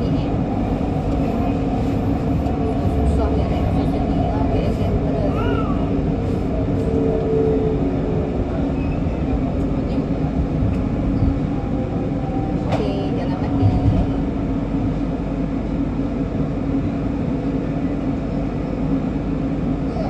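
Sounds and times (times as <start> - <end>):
electric train rumbling: 0.0 - 20.0.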